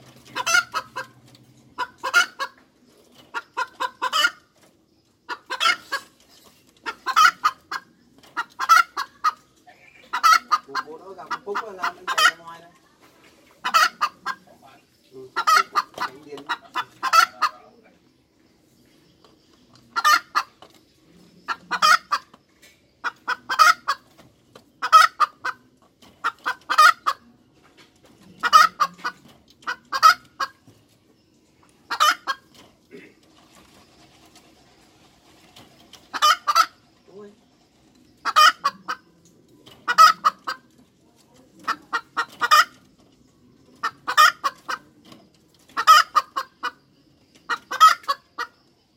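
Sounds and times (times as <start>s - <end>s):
hen cackling: 0.2s - 1.2s, 1.8s - 2.6s, 3.3s - 4.6s, 5.3s - 6.2s, 6.8s - 12.5s, 13.6s - 14.5s, 15.2s - 17.8s, 19.9s - 20.6s, 21.4s - 22.4s, 23.0s - 24.2s, 24.8s - 27.3s, 28.4s - 30.6s, 31.8s - 33.2s, 36.1s - 36.8s, 38.2s - 39.2s, 39.8s - 40.7s, 41.6s - 42.9s, 43.8s - 44.9s, 45.7s - 46.8s, 47.5s - 48.6s.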